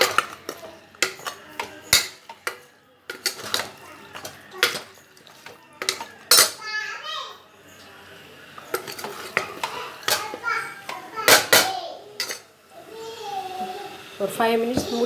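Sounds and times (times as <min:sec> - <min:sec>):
ladle scraping metal pot: 0:00.0 - 0:06.6, 0:08.5 - 0:12.5.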